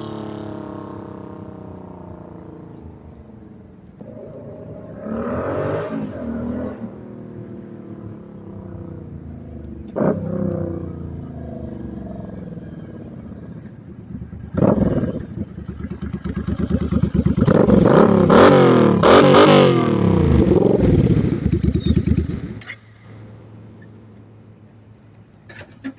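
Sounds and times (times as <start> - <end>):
motorcycle engine revving: 0.0 - 23.7.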